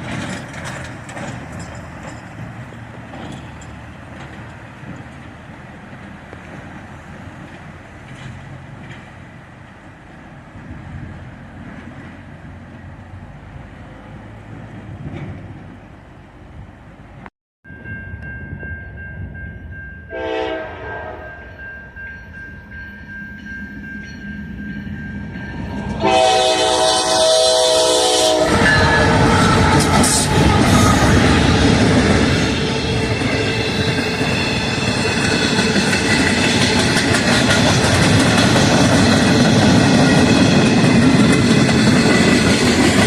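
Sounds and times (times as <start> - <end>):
train rumbling past: 0.0 - 43.0
train horn: 20.0 - 21.7, 25.6 - 34.4.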